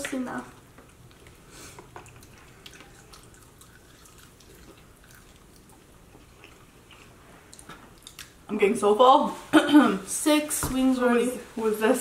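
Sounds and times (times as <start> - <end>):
chewing with wet mouth clicks: 0.8 - 8.4.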